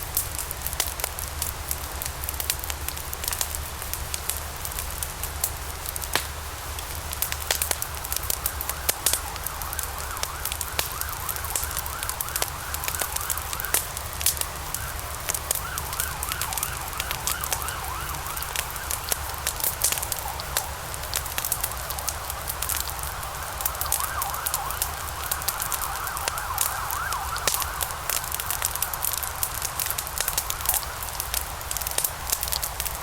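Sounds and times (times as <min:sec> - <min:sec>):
low fire rumble: 0:00.0 - 0:33.0
wood fire crackling and popping: 0:00.0 - 0:33.0
faint wavering whistle: 0:08.4 - 0:13.8, 0:22.8 - 0:28.4.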